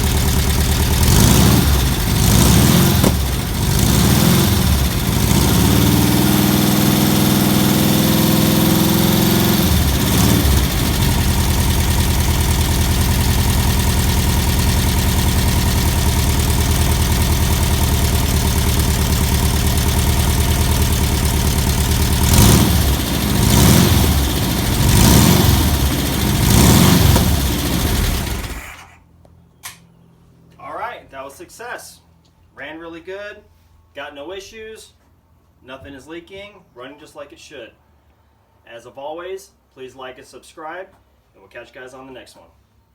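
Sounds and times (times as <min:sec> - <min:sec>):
air-cooled engine idling and revving: 0:00.0 - 0:28.9.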